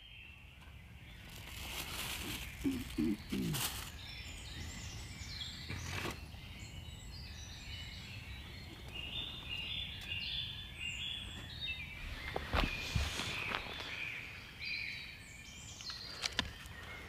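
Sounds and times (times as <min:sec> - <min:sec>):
birds chirping and warbling: 0:00.0 - 0:17.0.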